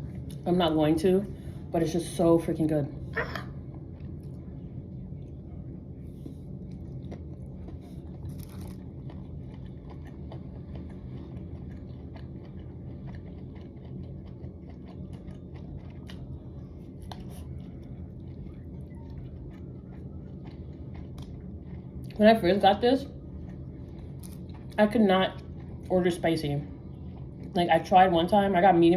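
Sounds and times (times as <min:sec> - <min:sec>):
low room hum: 0:00.0 - 0:28.9
person chewing food: 0:03.6 - 0:04.5, 0:06.1 - 0:22.2, 0:23.2 - 0:24.8, 0:26.8 - 0:27.6.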